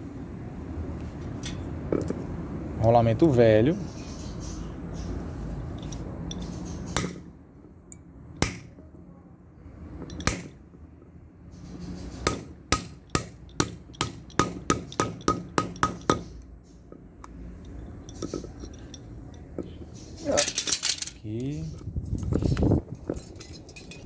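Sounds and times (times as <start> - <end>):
hammer striking metal: 12.3 - 16.3.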